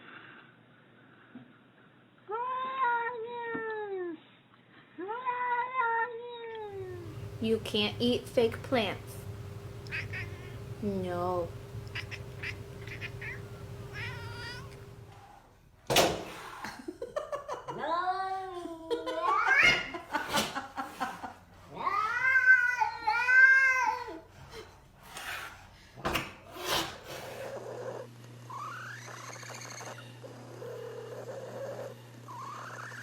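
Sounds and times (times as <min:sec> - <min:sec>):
steady low hum: 0:06.7 - 0:15.5
cat meowing: 0:11.8 - 0:14.9.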